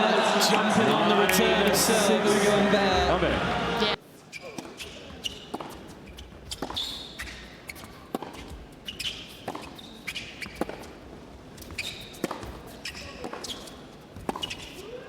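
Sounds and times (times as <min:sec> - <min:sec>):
sneakers squeaking on court: 0:04.3 - 0:10.9, 0:11.6 - 0:14.8.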